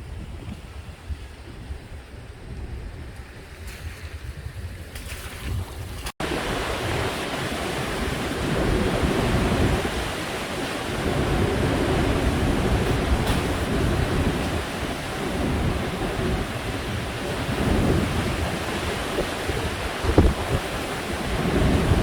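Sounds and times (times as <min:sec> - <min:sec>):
wind buffeting microphone: 0:00.0 - 0:22.0
surf: 0:05.9 - 0:22.0.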